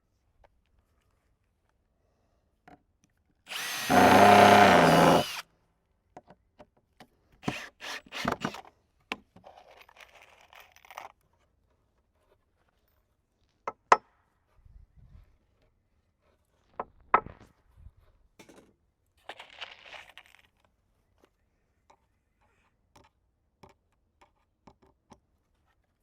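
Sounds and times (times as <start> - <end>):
power drill driving a screw: 3.5 - 5.4, 7.4 - 8.6.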